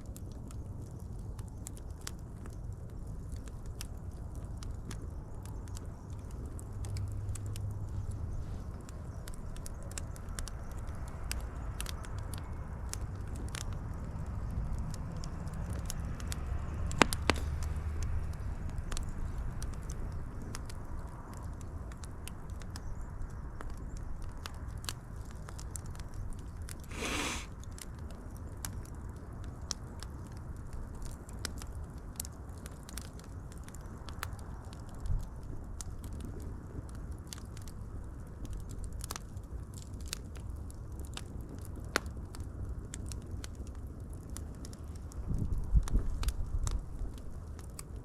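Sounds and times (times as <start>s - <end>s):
wood fire crackling: 0.0s - 48.0s
fire hiss: 26.9s - 27.6s.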